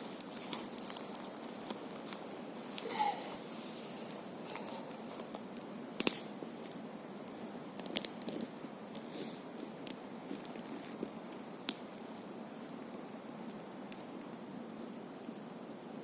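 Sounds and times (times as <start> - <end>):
fire pops and snaps: 0.0 - 2.9, 4.2 - 15.9
bonfire crackling: 0.0 - 16.0
fire hiss: 0.0 - 16.0.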